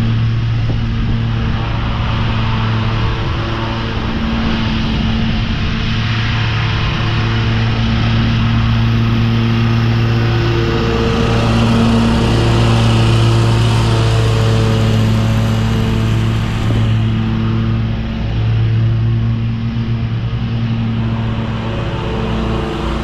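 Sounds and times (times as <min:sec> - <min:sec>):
lawn mower engine running: 0:08.6 - 0:23.0
mower cutting deck noise: 0:09.4 - 0:17.8.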